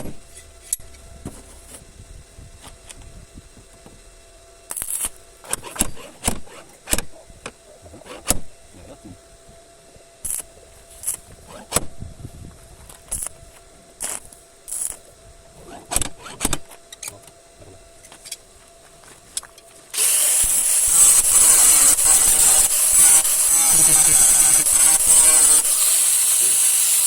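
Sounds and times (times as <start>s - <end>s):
compressed air hissing: 19.9s - 27.0s.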